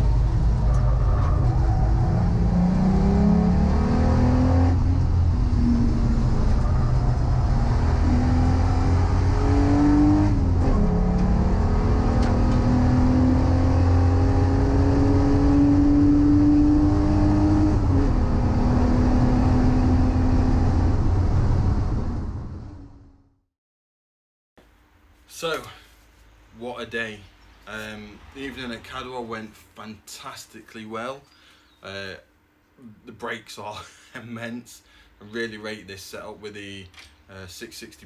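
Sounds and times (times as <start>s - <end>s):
car engine revving: 0.0s - 23.1s.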